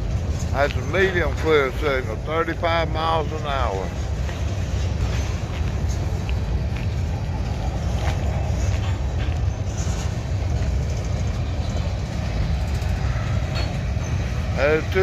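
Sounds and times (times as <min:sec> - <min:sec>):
freight train rumbling past: 0:00.0 - 0:15.0
train wheel clicks: 0:00.0 - 0:15.0.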